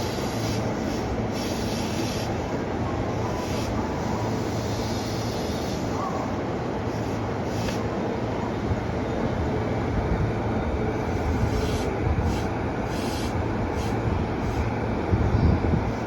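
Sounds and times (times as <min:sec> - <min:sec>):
short hissing bursts: 0:00.0 - 0:02.4, 0:03.3 - 0:06.0, 0:06.9 - 0:07.9, 0:11.3 - 0:14.7
train wheels and motors rumbling: 0:00.0 - 0:16.0.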